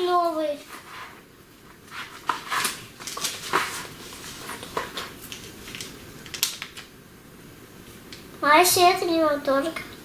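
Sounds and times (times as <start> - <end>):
plastic packets crinkling: 2.2 - 6.9.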